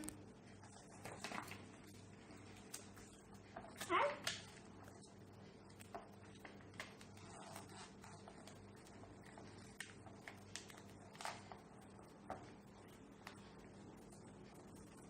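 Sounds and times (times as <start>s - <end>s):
faint low hum: 0.0s - 15.0s
taps and paper rustles: 0.9s - 4.8s, 5.7s - 13.6s.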